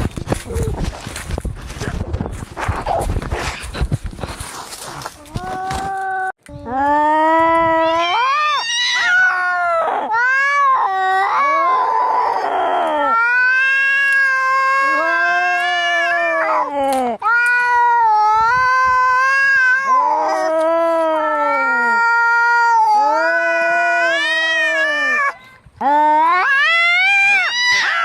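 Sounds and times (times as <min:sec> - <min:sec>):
cats yowling in a fight: 0:07.7 - 0:25.4, 0:26.2 - 0:28.0.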